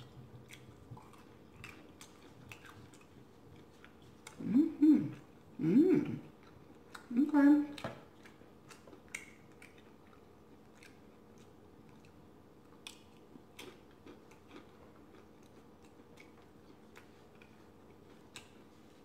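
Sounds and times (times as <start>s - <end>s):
chewing crispy food: 0.0s - 5.6s, 6.2s - 19.0s.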